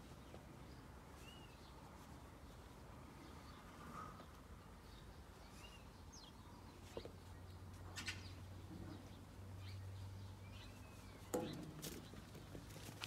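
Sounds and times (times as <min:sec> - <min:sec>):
faint bird chirps: 0:01.2 - 0:01.8.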